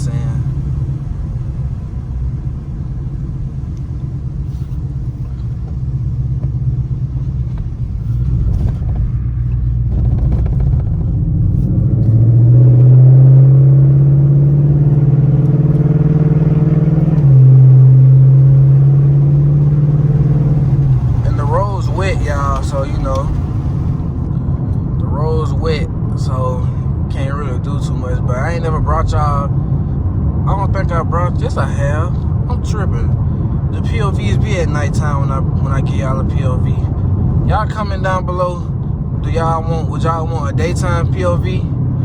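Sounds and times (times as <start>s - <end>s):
car engine droning: 0.0s - 42.0s.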